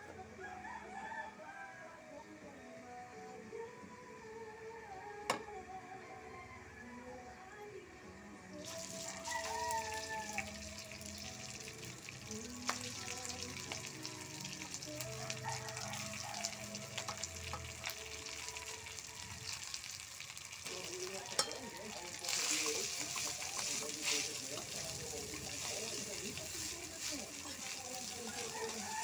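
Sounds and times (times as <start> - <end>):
rice sizzling in hot oil: 8.6 - 29.0
metal spatula scraping a pan: 21.3 - 28.5.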